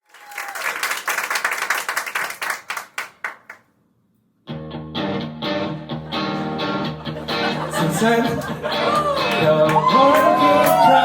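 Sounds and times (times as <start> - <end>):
audience applause: 0.0 - 3.6, 8.8 - 11.0
band with guitar playing: 4.5 - 11.0.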